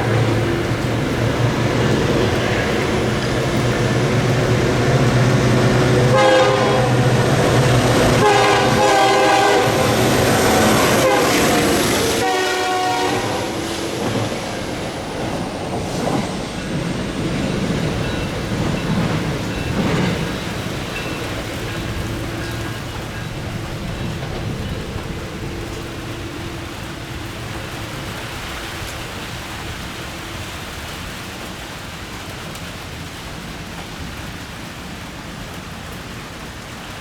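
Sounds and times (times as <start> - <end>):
locomotive engine drone: 0.0 - 31.6
train clattering on rails: 0.0 - 37.0
locomotive air horn blasts: 2.6 - 14.0.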